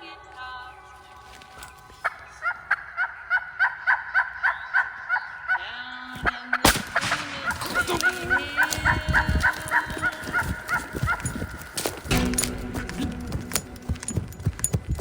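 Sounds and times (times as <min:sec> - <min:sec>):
turkey yelping: 0:02.0 - 0:05.6, 0:07.0 - 0:11.5
shotgun shot: 0:06.6 - 0:08.4.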